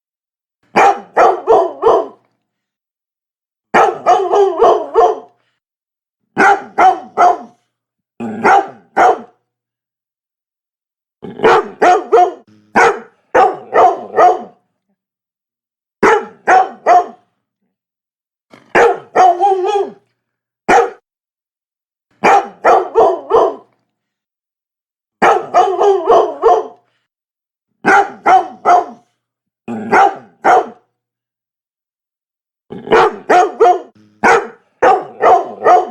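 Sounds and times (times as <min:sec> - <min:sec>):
dog barking: 0:00.7 - 0:02.2, 0:03.7 - 0:05.4, 0:06.4 - 0:07.6, 0:08.4 - 0:09.4, 0:11.4 - 0:14.6, 0:16.0 - 0:17.3, 0:18.7 - 0:20.0, 0:20.7 - 0:21.0, 0:22.2 - 0:23.7, 0:25.2 - 0:26.8, 0:27.8 - 0:29.1, 0:29.8 - 0:30.9, 0:32.8 - 0:35.9.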